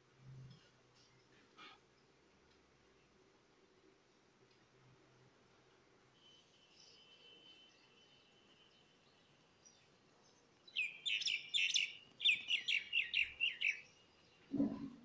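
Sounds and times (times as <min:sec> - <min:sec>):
songbird chirping: 0:06.2 - 0:15.0.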